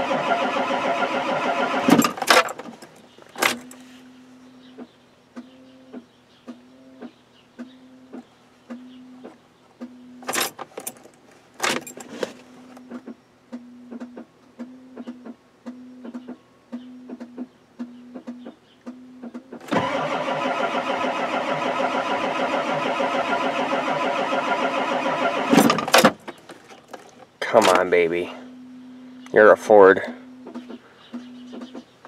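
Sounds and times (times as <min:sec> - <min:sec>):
starter cranking diesel engine: 0:00.0 - 0:02.8, 0:19.6 - 0:26.3
low warning beep: 0:27.6 - 0:31.6.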